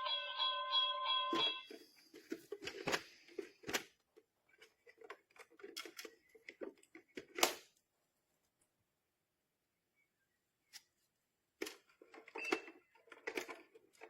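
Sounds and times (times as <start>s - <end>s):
toy electronic chime tones: 0.0s - 1.7s.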